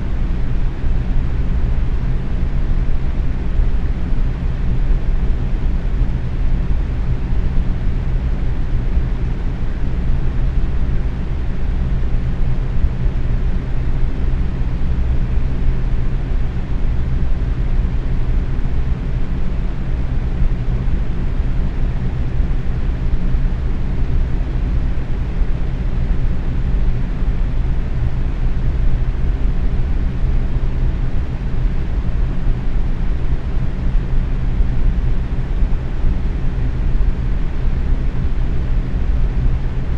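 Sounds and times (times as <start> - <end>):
low fan hum: 0.0 - 39.9.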